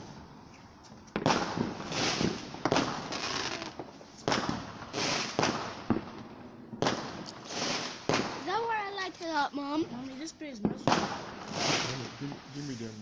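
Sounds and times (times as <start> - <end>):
fireworks bangs: 0.0 - 13.0
fireworks hissing and crackling: 0.0 - 13.0.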